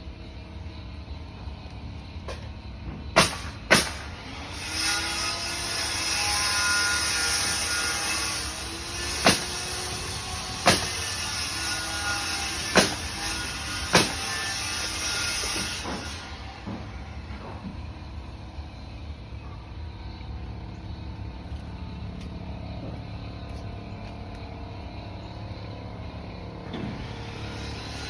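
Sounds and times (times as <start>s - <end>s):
heavy machine running: 0.0s - 28.0s
sharp loud bangs: 3.2s - 4.1s, 13.9s - 14.4s.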